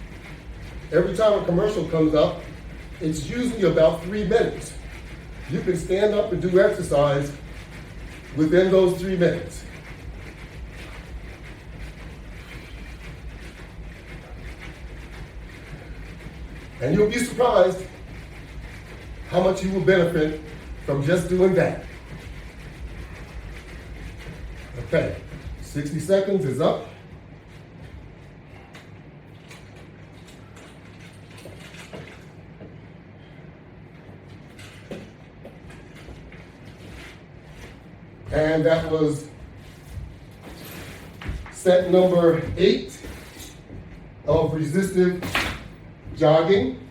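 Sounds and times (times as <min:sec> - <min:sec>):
steady low rumble: 0:00.0 - 0:29.0
rhythmic swish and steps: 0:00.0 - 0:33.0, 0:33.7 - 0:46.9
low steady hum: 0:00.0 - 0:46.9.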